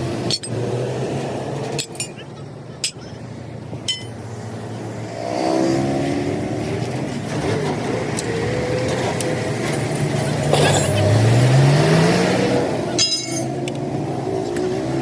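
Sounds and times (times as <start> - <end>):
sharp metal clink: 3.9 - 4.2, 13.0 - 13.6
vehicle engine accelerating: 4.3 - 15.0.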